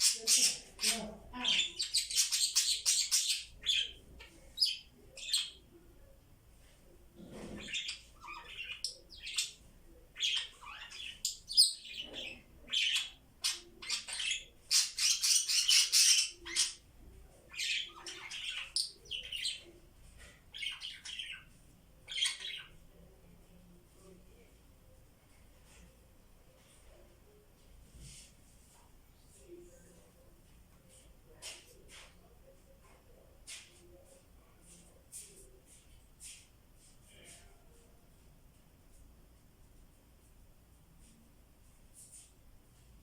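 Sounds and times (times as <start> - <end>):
budgies chirping and chattering: 0.0 - 5.6, 7.2 - 22.8.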